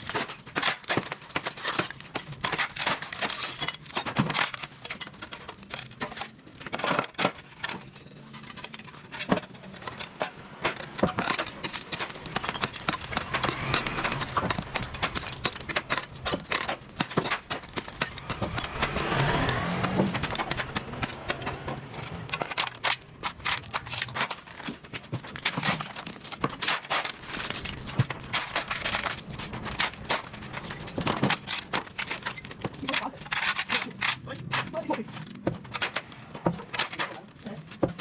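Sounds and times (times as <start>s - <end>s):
cleaning tools scraping pavement: 6.8s - 24.7s
vehicle passing: 9.4s - 23.6s.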